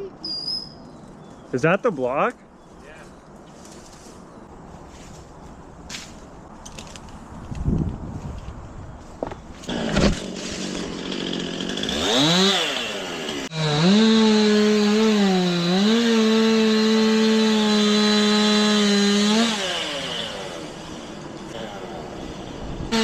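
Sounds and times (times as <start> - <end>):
chainsaw revving through a cut: 9.7 - 23.0.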